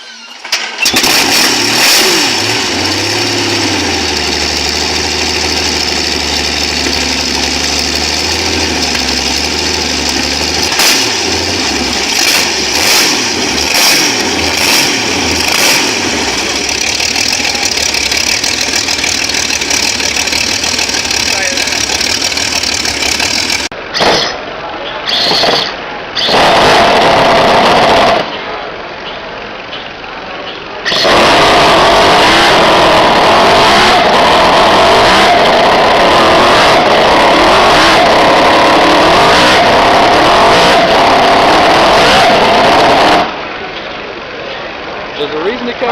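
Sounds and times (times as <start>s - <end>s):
engine running with regular puffs: 0.5s - 24.2s.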